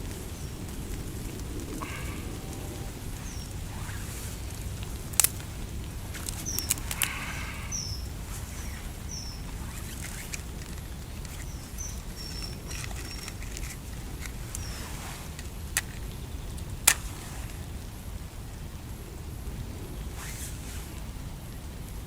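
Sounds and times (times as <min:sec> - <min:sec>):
rain hiss: 0:00.0 - 0:22.0
small bird chirping: 0:02.7 - 0:17.7
sharp clicks: 0:04.9 - 0:05.5, 0:06.1 - 0:08.0, 0:08.6 - 0:17.2.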